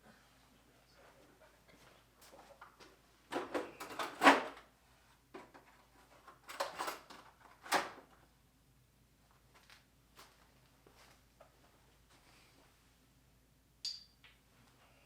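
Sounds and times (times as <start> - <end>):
tools clattering in metal drawers: 3.3 - 4.6, 6.2 - 8.0.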